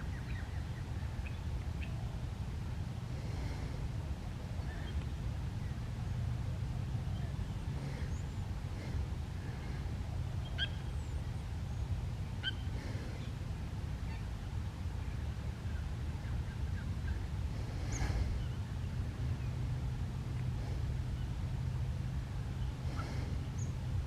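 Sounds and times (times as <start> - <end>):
steady low rumble: 0.0 - 24.0
birds chirping: 15.7 - 19.7, 20.6 - 24.0.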